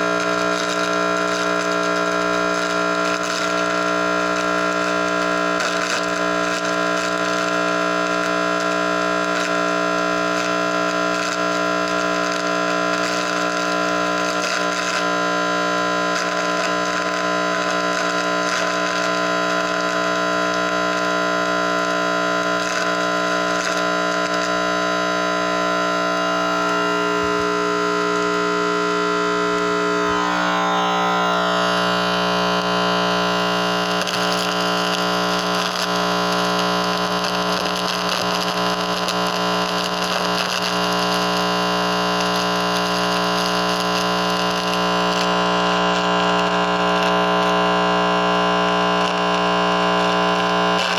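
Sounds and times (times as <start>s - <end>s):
static crackles: 0.0s - 50.9s
static hiss from speaker: 16.0s - 50.9s
steady hum-like tones: 29.8s - 31.7s.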